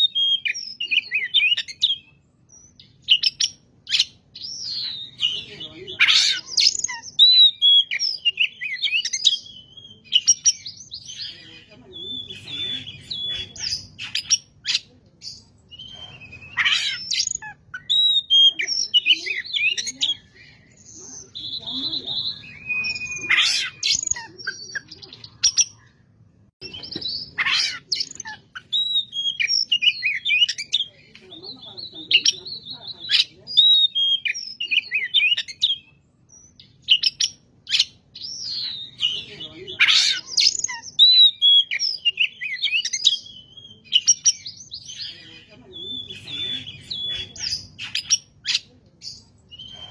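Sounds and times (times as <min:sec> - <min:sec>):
magpie-robin singing: 0:00.0 - 0:26.0, 0:26.6 - 0:49.9
bird singing whistled notes: 0:20.9 - 0:24.8.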